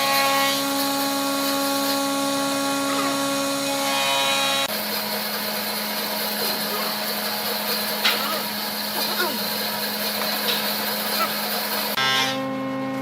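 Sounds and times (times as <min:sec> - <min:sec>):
wood lathe motor humming: 0:03.3 - 0:12.1.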